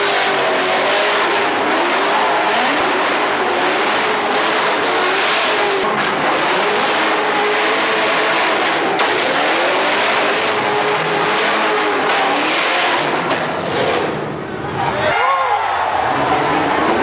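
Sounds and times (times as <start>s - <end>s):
car engine revving hard: 0.0s - 14.4s
sharp crack: 9.0s - 9.5s.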